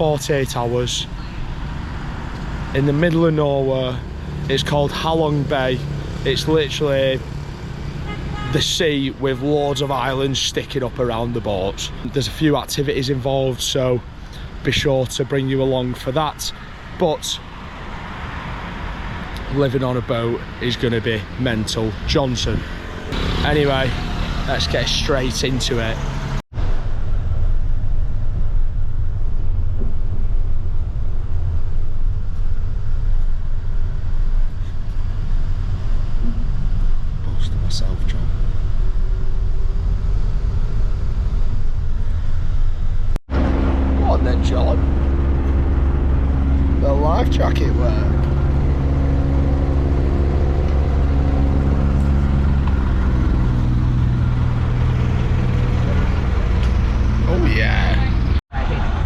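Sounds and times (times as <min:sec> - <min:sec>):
vehicle engine rumbling: 0:00.0 - 0:59.0
motor engine running: 0:43.3 - 0:58.4.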